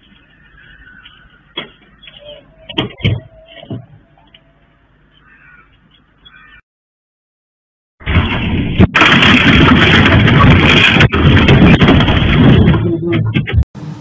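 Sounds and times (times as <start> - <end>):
low road noise: 0.0 - 6.6, 8.1 - 14.0
sharp bangs: 8.0 - 13.6.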